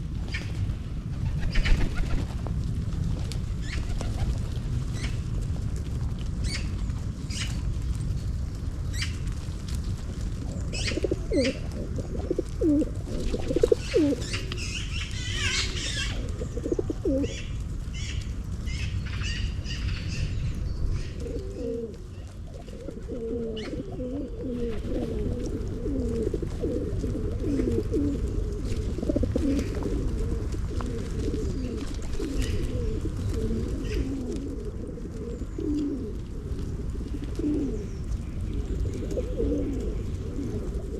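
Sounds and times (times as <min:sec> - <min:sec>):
low background rumble: 0:00.0 - 0:40.9
pigeons cooing: 0:10.1 - 0:40.9.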